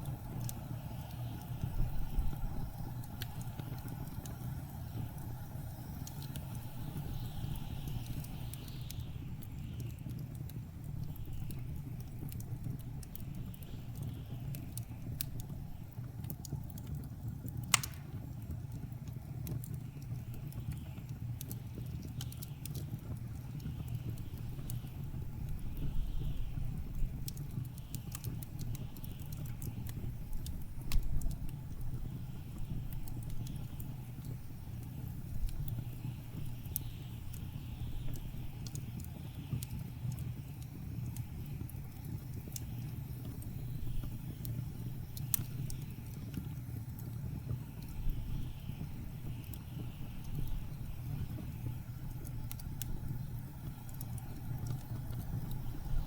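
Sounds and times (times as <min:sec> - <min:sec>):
low rumble of blizzard wind: 0:00.0 - 0:56.0
wood fire crackling: 0:00.0 - 0:56.0
sharp loud pop of fire: 0:17.7 - 0:18.1.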